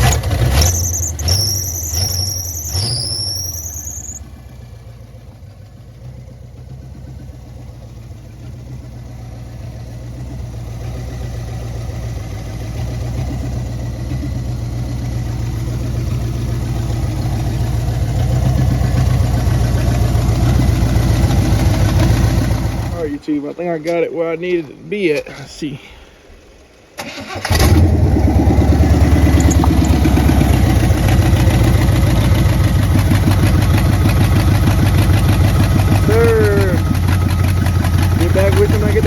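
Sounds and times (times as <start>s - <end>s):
high rising squeal: 0.0s - 4.3s, 27.1s - 32.4s
car engine running: 0.0s - 24.8s, 27.5s - 39.0s.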